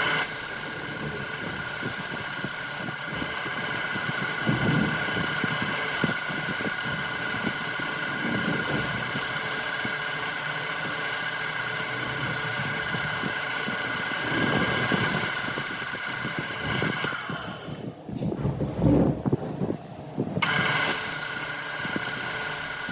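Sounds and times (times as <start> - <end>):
rough rushing of turning wood: 0.0 - 17.8
wood lathe motor whine: 0.0 - 18.0, 20.4 - 22.9.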